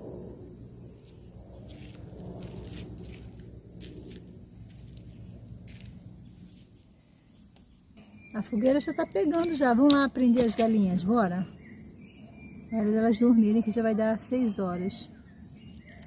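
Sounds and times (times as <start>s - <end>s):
fire low rumble: 0.0s - 6.6s
crickets chirping: 0.0s - 16.0s.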